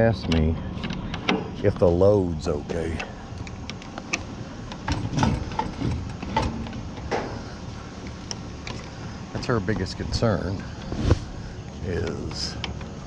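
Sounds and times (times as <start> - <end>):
small clicks and rattles: 0.0 - 9.9
truck engine and road rumble: 0.0 - 13.0.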